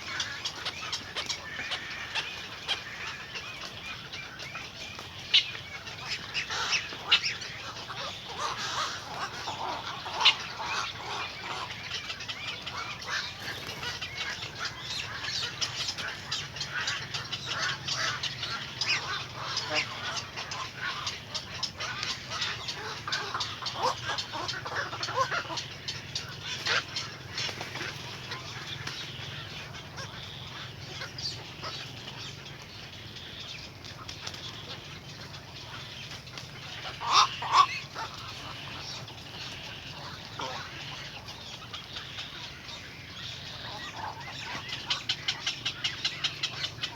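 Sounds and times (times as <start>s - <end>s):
birds chirping: 0.0s - 46.9s.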